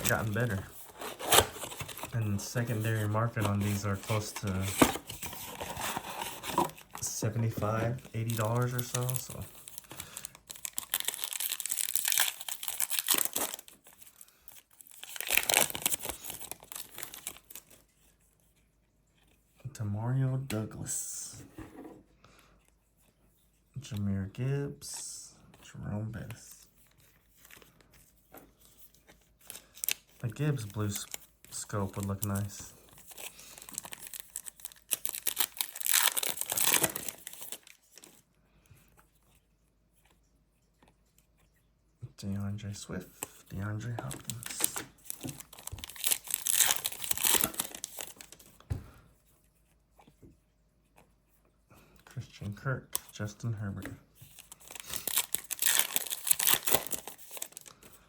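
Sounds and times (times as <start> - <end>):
plastic wrapper tearing and crinkling: 0.0 - 17.7, 29.5 - 38.1, 44.0 - 48.5, 54.3 - 57.8.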